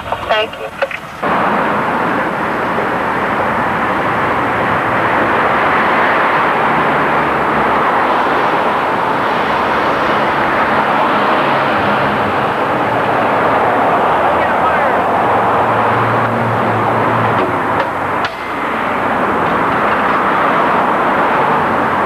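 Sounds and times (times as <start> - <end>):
vehicle road noise: 0.0 - 22.0.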